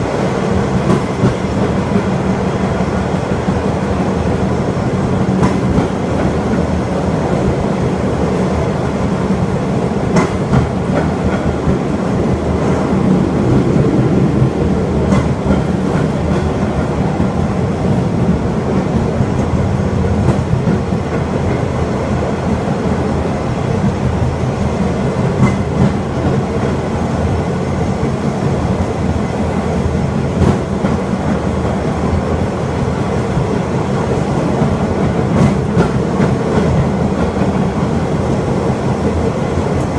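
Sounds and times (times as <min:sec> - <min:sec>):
rail cart rumbling along track: 0:00.0 - 0:39.9
wheels clicking over rail joints: 0:10.0 - 0:11.9, 0:25.1 - 0:26.8.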